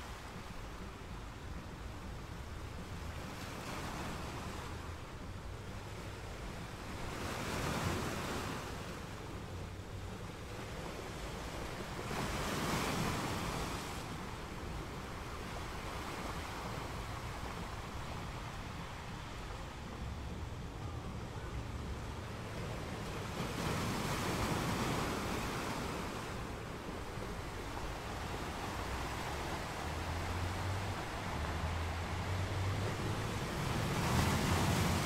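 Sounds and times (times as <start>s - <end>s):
rushing water: 25.3s - 35.0s.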